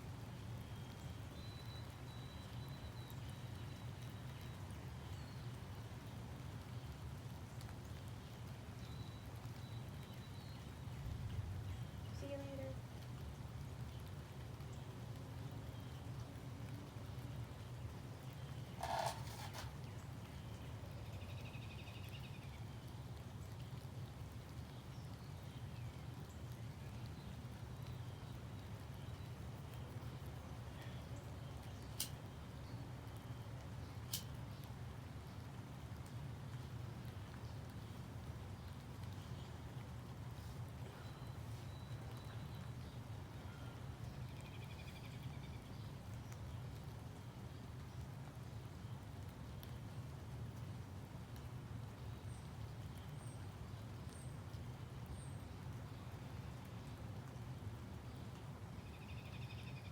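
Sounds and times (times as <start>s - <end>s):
faint bird chirps: 0.7s - 5.5s, 40.4s - 45.7s
songbird trill: 0.7s - 5.6s, 18.5s - 22.7s, 40.9s - 46.5s, 58.8s - 59.9s.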